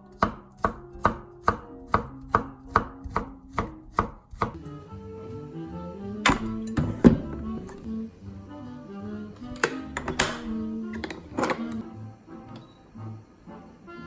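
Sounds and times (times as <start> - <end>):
knife chopping on cutting board: 0.1 - 4.6.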